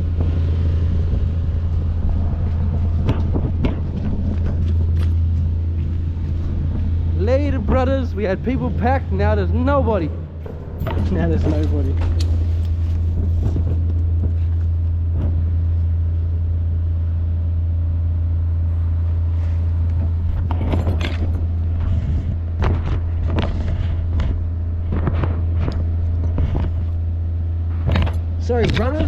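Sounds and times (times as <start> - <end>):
vehicle engine idling: 0.0 - 29.0
short clatters and knocks: 19.9 - 27.0.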